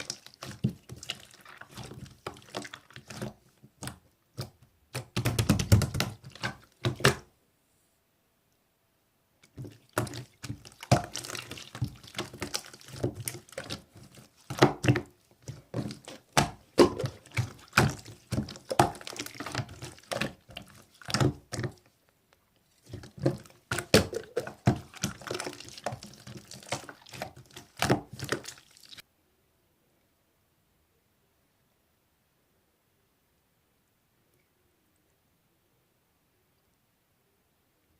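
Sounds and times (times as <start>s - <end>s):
slime squished by hand: 9.5s - 21.8s, 22.7s - 29.0s.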